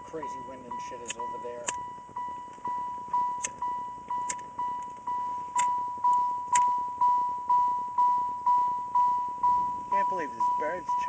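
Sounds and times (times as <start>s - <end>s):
electronic warning chime beeping: 0.0s - 11.0s
sharp high chirps: 0.2s - 11.0s.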